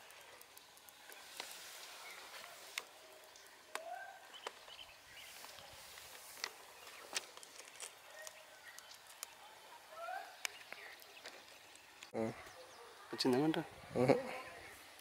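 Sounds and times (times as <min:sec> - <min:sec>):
faint open-air ambience: 0:00.0 - 0:15.0
rising bird calls: 0:03.4 - 0:05.5.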